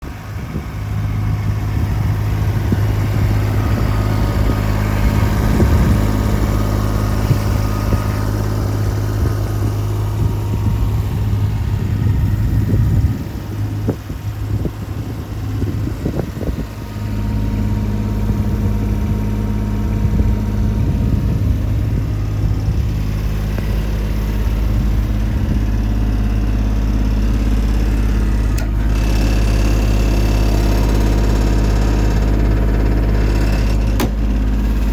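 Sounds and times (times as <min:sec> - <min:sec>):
truck engine humming: 0:00.0 - 0:34.9
single click: 0:34.0 - 0:34.2.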